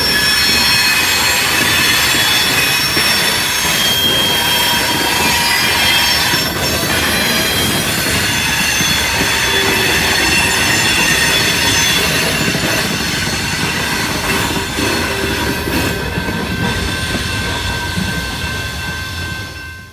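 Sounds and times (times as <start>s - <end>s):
train wheels squealing: 0.0s - 19.9s
wheels rumbling on rail: 0.0s - 19.9s.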